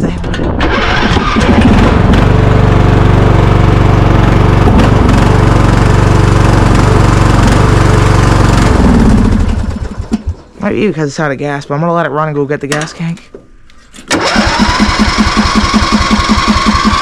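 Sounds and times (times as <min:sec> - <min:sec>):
small engine running: 0:00.6 - 0:10.4, 0:14.1 - 0:17.0
man talking: 0:10.6 - 0:13.4.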